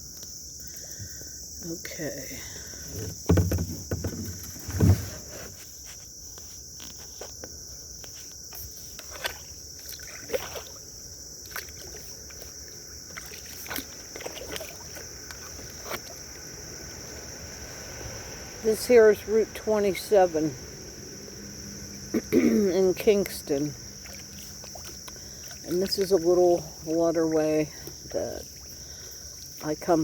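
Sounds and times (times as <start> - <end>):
crickets chirping: 0.0 - 30.0
paddle splashing water: 2.6 - 6.0, 8.0 - 20.3, 21.8 - 30.0
paddle thumping kayak hull: 2.7 - 5.7.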